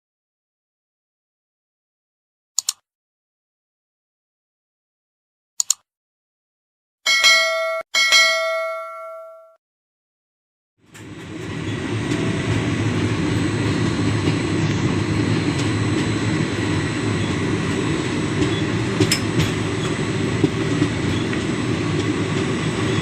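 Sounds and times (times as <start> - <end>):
passenger train running: 10.8 - 23.0
train wheels clicking: 10.9 - 23.0.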